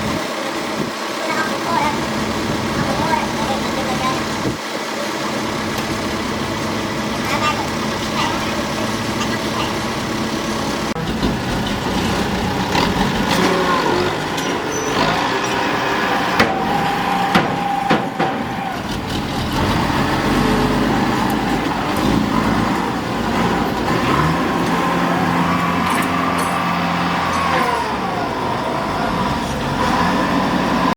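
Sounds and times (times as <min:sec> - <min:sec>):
heavy vehicle engine running: 0:00.0 - 0:30.9
sharp knocks: 0:16.3 - 0:18.6.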